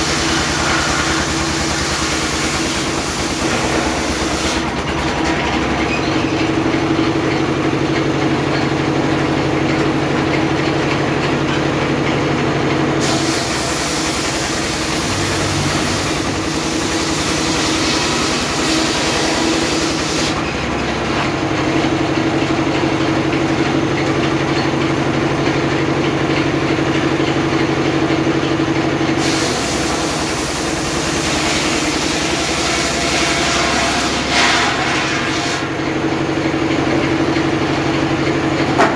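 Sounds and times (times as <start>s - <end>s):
circular saw cutting wood: 0.0s - 6.1s, 12.7s - 21.4s, 29.1s - 37.3s.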